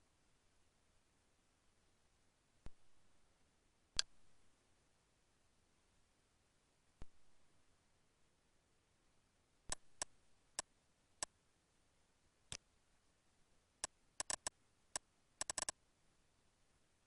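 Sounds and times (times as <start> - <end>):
computer mouse clicking: 14.2 - 14.5, 15.4 - 15.8.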